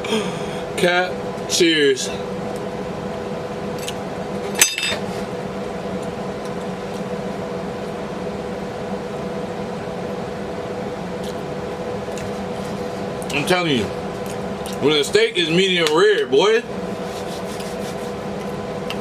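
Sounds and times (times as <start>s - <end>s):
steady low hum: 0.0s - 19.0s
glass clink: 4.6s - 5.0s.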